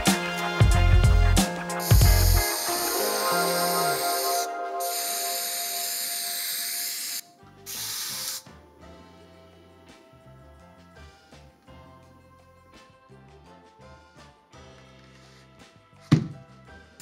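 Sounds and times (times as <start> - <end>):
background music: 0.0 - 17.0
spray paint can hissing: 1.4 - 8.5.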